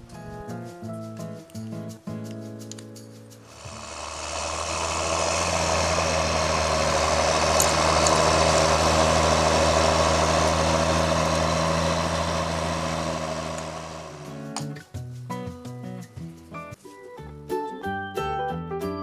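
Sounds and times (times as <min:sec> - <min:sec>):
tractor diesel engine humming: 0:03.4 - 0:14.7.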